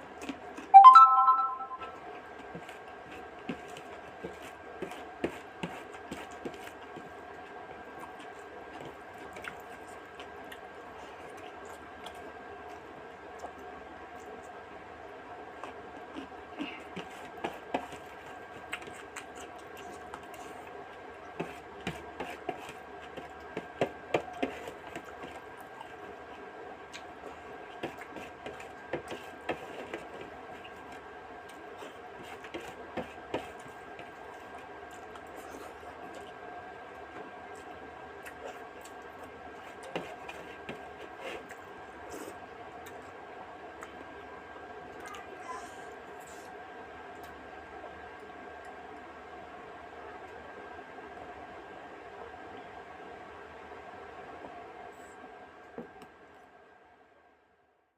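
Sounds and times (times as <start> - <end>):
steady background hum: 1.6 - 57.8
wet chewing and smacking: 2.4 - 14.6, 15.6 - 43.2.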